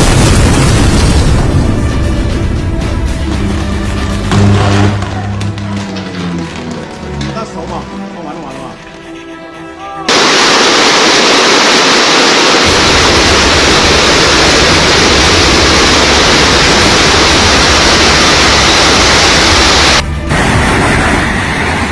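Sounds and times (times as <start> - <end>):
storm rushing noise: 0.0 - 2.7, 10.1 - 21.9
deep rumble: 11.8 - 21.9.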